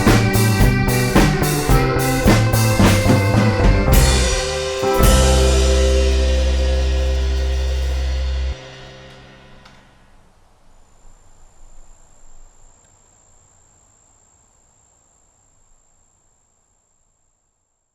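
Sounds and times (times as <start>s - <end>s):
deep bass: 0.0s - 9.7s
band final chord ringing: 0.0s - 10.1s.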